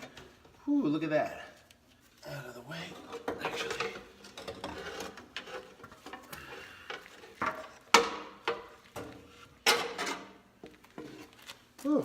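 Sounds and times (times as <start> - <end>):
tools knocking and clanking: 3.0 - 6.3, 6.9 - 11.2.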